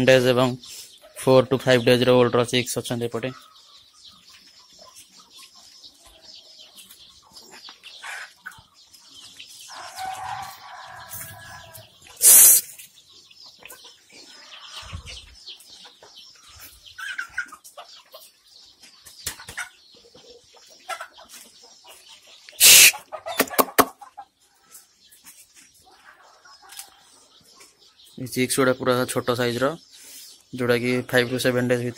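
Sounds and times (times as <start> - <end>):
chicks peeping: 0.0 - 31.9
lower bird call: 11.4 - 12.8, 22.5 - 23.9.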